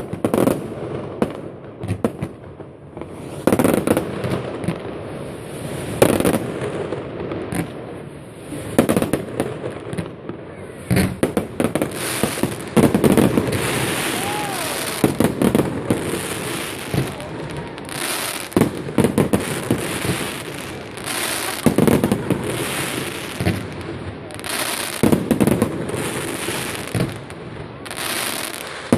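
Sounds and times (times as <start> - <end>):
fireworks crackling: 0.0 - 28.9.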